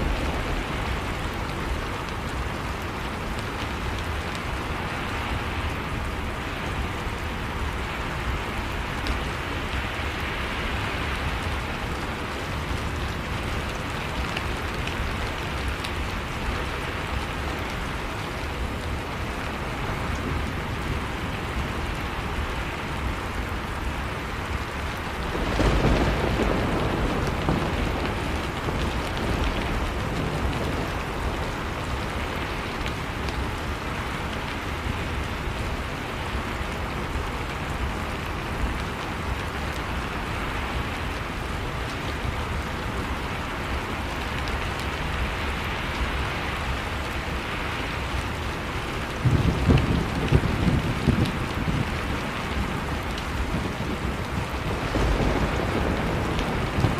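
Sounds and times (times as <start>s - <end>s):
heavy rain falling: 0.0s - 56.9s
thunder clap rumbling: 25.3s - 32.0s, 49.2s - 56.9s.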